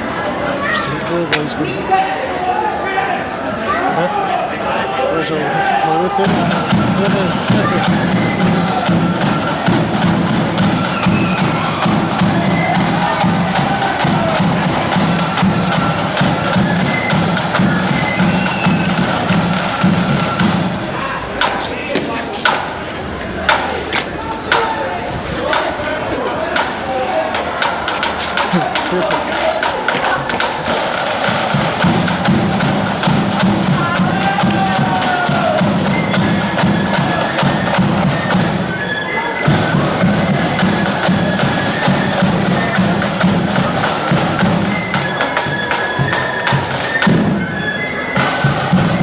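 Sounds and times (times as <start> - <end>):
flute melody: 0.0 - 21.9, 24.2 - 49.0
snare drum strokes: 5.5 - 49.0
pulsing bass drum: 6.2 - 21.5, 28.0 - 38.7.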